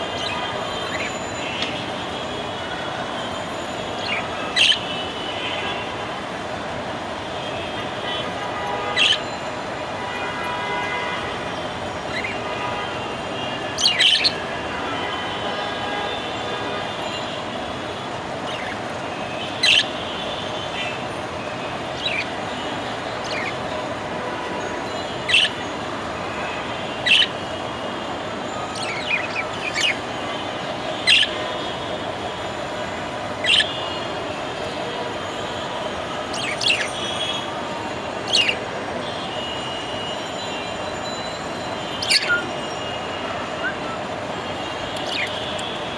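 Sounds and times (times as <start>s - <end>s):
budgerigar chirping: 4.1s - 4.8s, 9.0s - 9.2s, 13.8s - 14.4s, 19.6s - 19.9s, 22.0s - 22.3s, 23.2s - 23.6s, 25.3s - 25.6s, 27.0s - 27.3s, 28.8s - 30.0s, 31.0s - 31.3s, 33.4s - 33.7s, 36.3s - 36.9s, 38.3s - 38.6s, 42.0s - 42.4s.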